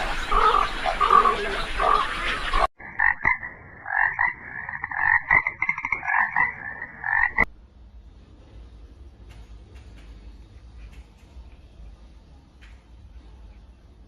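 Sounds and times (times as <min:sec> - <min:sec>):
frogs croaking: 0:00.0 - 0:07.5.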